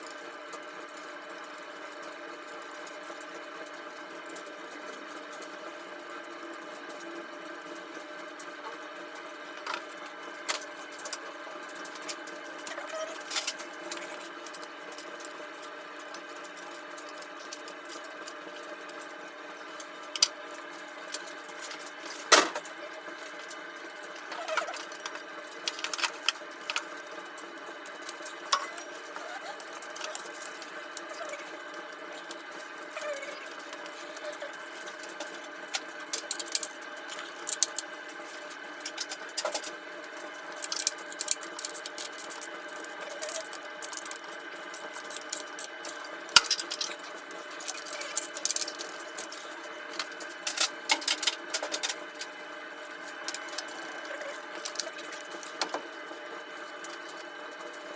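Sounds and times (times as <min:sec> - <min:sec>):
tools and metal parts clinking: 0:44.9 - 0:52.0.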